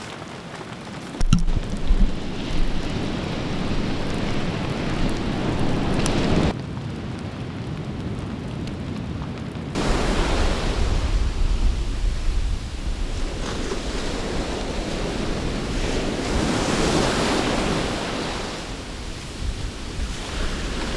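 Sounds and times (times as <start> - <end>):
rain hissing: 1.2 - 6.5, 9.8 - 20.9
sea surf: 1.2 - 6.5, 9.8 - 20.9
wind buffeting microphone: 1.2 - 6.5, 9.8 - 20.9.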